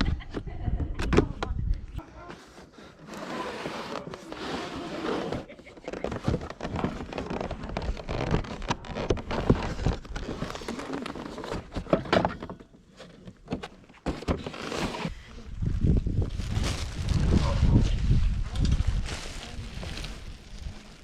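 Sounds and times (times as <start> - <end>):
items being handled rustling: 2.0 - 15.2.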